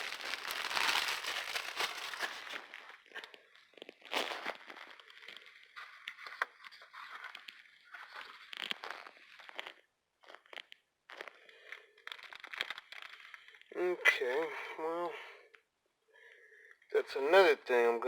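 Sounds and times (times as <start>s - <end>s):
dry leaves rustling and crackling: 0.0s - 2.8s.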